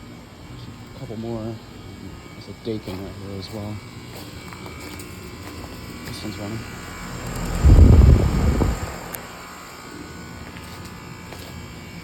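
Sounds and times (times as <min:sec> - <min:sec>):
air conditioner humming: 0:05.2 - 0:09.4
loud irregular low rumble: 0:06.2 - 0:09.7.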